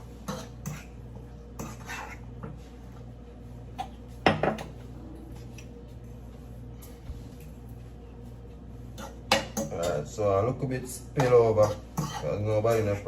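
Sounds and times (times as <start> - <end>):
spoon scraping a pot: 0.2 - 2.6, 11.2 - 13.0.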